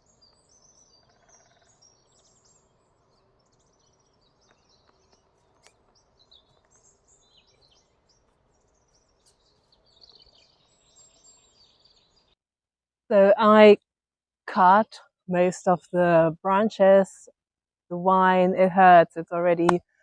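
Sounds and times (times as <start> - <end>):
small birds chirping and trilling: 0.0 - 12.4
faint clicks: 4.4 - 6.9.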